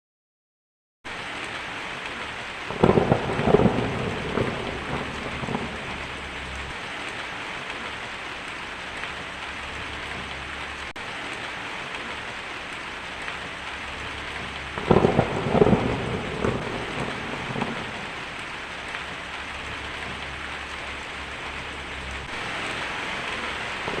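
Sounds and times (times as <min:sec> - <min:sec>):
heavy rain: 0:01.1 - 0:24.0
thunder clap: 0:02.7 - 0:06.7, 0:14.2 - 0:24.0.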